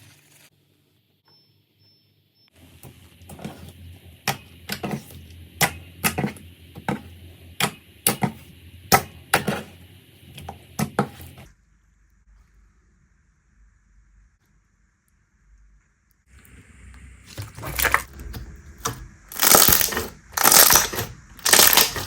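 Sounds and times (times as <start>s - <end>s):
slime popping and crackling: 19.3s - 22.0s.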